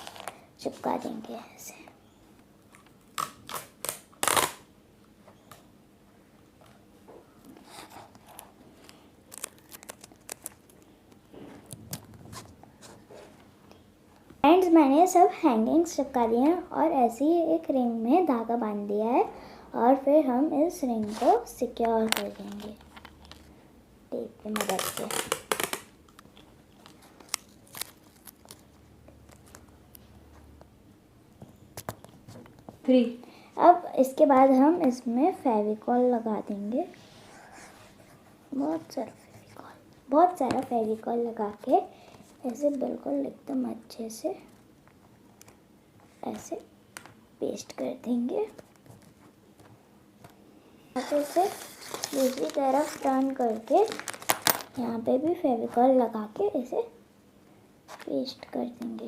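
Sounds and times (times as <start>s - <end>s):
sticky tape tearing: 0.0s - 0.4s, 2.7s - 4.7s, 9.3s - 10.8s, 24.4s - 26.2s, 26.8s - 28.7s, 51.0s - 54.8s
paper rustling: 7.6s - 10.9s, 21.0s - 21.4s, 51.0s - 54.8s.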